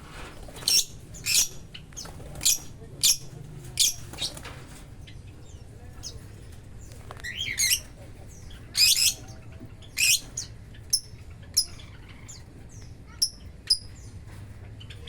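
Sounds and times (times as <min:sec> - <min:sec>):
lovebirds screeching: 0:00.4 - 0:14.2
lovebird high chirps: 0:00.6 - 0:01.6, 0:07.2 - 0:07.9, 0:08.8 - 0:12.4, 0:13.2 - 0:14.1.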